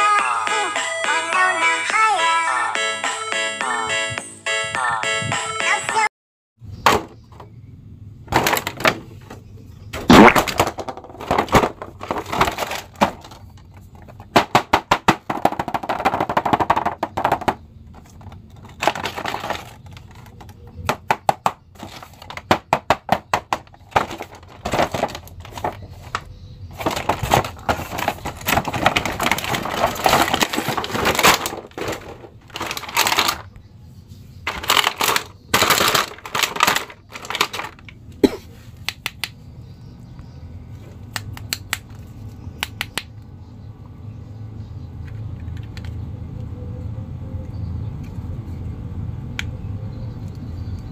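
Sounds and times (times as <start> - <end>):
plastic packaging crinkling: 11.3 - 13.5, 18.0 - 20.4, 24.0 - 33.6, 34.5 - 38.0.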